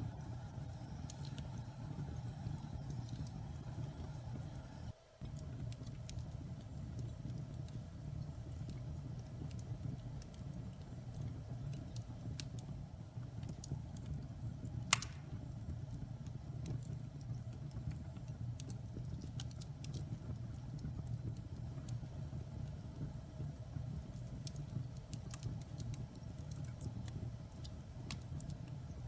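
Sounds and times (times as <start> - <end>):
fire crackling: 0.0 - 29.0
fireplace flames rumbling: 0.0 - 29.0
loud fire pop: 14.9 - 15.4.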